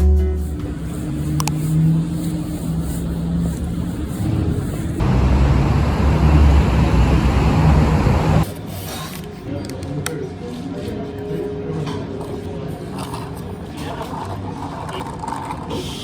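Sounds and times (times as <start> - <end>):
car engine rumbling: 5.0 - 8.4.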